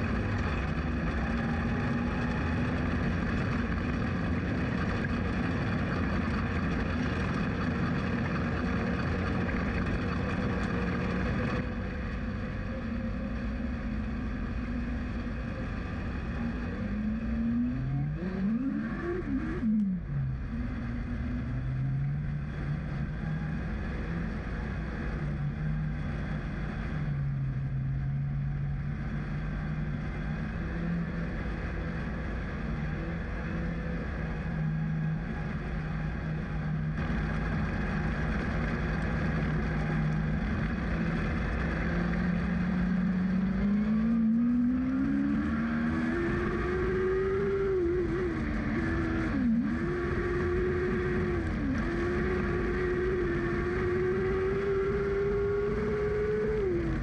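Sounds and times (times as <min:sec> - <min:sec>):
racing car engine revving: 0:16.2 - 0:23.2, 0:36.9 - 0:57.0.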